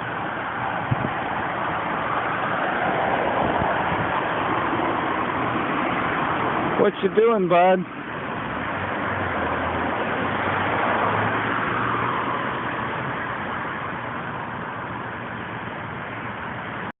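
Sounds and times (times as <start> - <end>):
car passing: 0.0 - 16.9.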